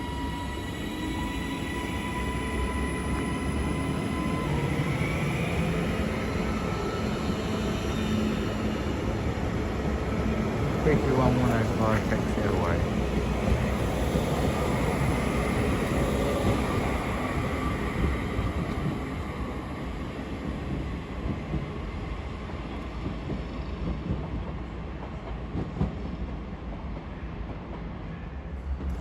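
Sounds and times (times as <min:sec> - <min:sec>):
electric train pulling away: 0:00.0 - 0:20.7.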